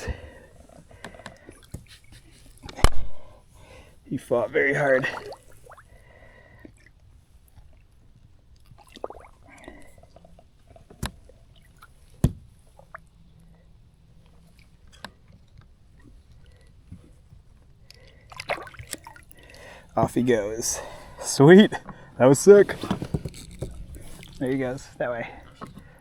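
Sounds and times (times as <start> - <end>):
small water splashes: 5.0 - 5.9, 8.6 - 13.2, 17.9 - 21.1.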